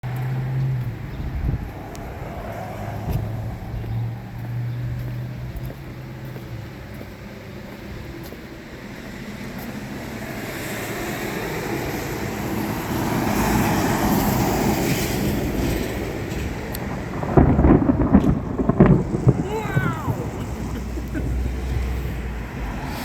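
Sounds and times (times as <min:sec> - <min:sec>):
rolling thunder rumble: 0:00.0 - 0:06.8, 0:11.4 - 0:23.0.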